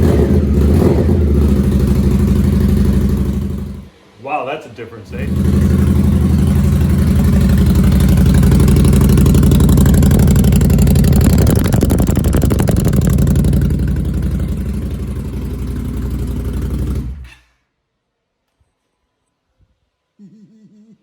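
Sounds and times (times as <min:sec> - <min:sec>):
motorcycle engine idling: 0:00.0 - 0:04.0, 0:05.1 - 0:17.3.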